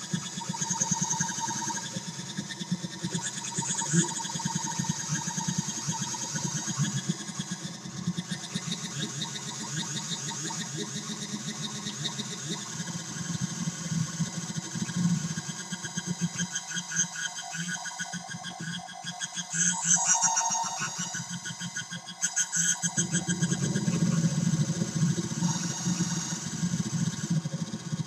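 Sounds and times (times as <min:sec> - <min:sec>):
square-wave synth drone: 0:22.5 - 0:28.0.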